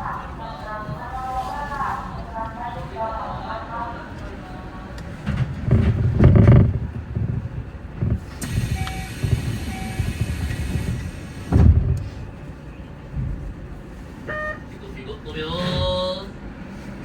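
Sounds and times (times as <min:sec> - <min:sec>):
electric train rumble: 0:00.0 - 0:17.0
heavy low thumps: 0:05.4 - 0:12.4.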